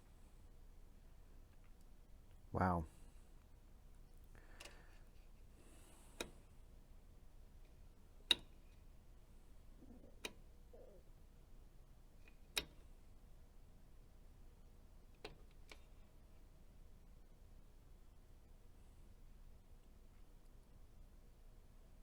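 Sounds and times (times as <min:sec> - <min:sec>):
faint steady hum: 0:00.0 - 0:22.0
switch clicks: 0:06.2 - 0:06.4, 0:08.3 - 0:08.6, 0:12.3 - 0:12.8.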